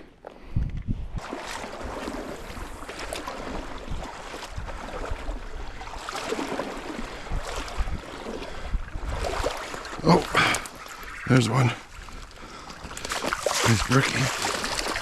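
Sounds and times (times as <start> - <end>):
creek water rushing: 9.1 - 15.0.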